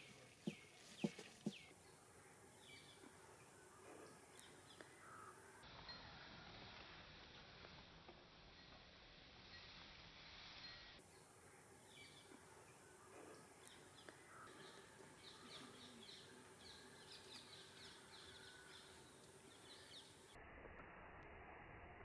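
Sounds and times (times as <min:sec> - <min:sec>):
faint rapid bird chirps: 0:00.0 - 0:06.2
low hiss: 0:00.0 - 0:22.0.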